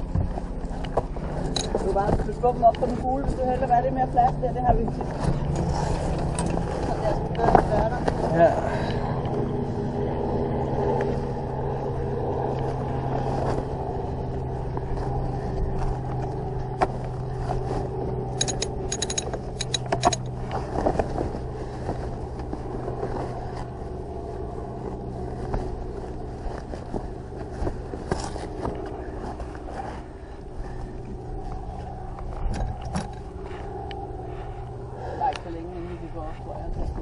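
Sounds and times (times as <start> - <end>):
engine hum: 0.0 - 37.0
sharp clicks or rattles: 18.4 - 20.4.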